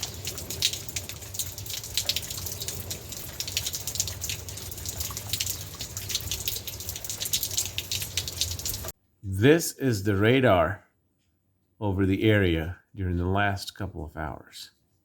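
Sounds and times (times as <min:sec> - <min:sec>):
raindrops splashing on hard surfaces: 0:00.0 - 0:08.9.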